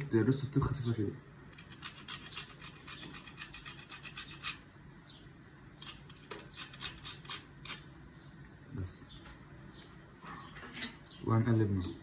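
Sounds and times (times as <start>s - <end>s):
utensil scraping bottom of a pot: 1.5s - 4.7s, 5.8s - 7.9s.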